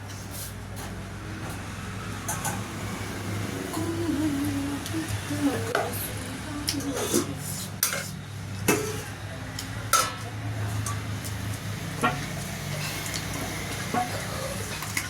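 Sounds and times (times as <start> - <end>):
utensils clinking on plates: 6.7 - 15.0.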